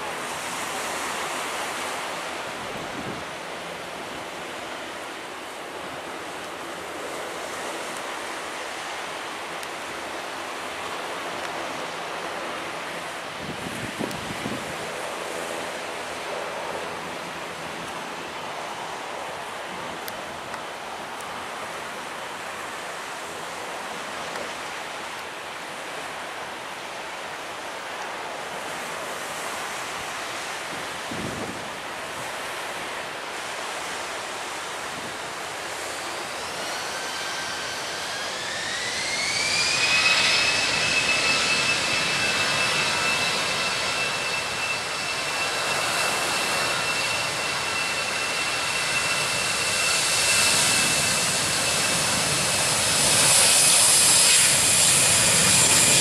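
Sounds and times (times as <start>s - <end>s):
wind: 0.0s - 56.0s
jet engines whining: 33.4s - 56.0s.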